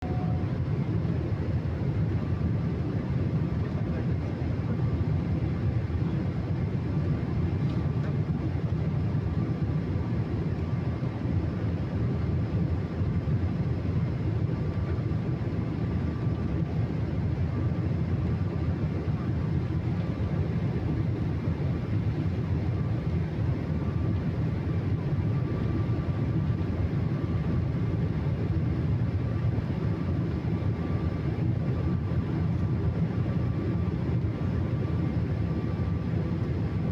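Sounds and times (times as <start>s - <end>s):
high engine whine: 0.0s - 6.7s.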